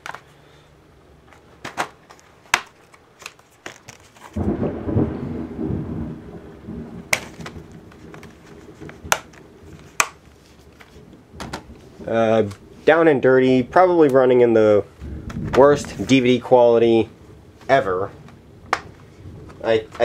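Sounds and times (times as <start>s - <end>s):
thunder rumbling: 4.4s - 20.0s.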